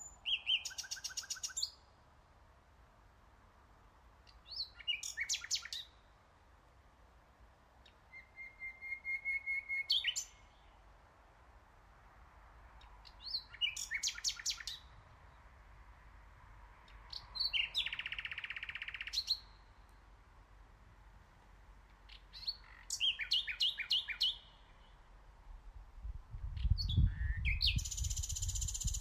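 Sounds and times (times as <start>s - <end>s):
nightingale singing: 0.0s - 1.9s, 4.3s - 6.1s, 7.8s - 10.8s, 12.8s - 15.0s, 16.9s - 20.1s, 22.0s - 25.0s, 26.4s - 29.0s.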